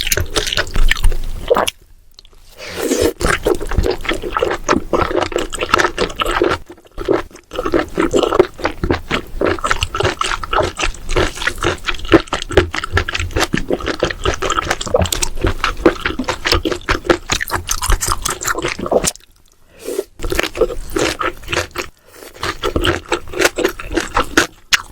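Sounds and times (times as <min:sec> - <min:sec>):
chewing mouth sounds: 0:03.0 - 0:19.6, 0:20.2 - 0:24.9.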